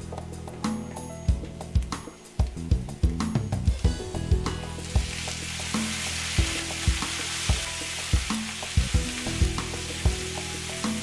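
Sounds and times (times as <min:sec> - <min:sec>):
background music with steady beat: 0:00.0 - 0:11.0
food sizzling in a pan: 0:03.8 - 0:11.0.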